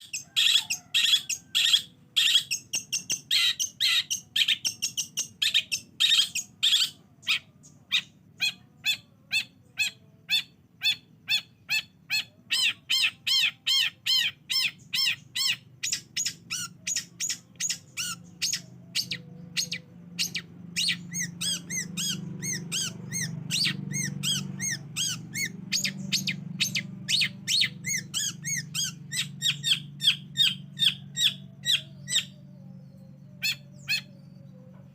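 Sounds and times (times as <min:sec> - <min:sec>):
low hum: 0:16.7 - 0:34.9.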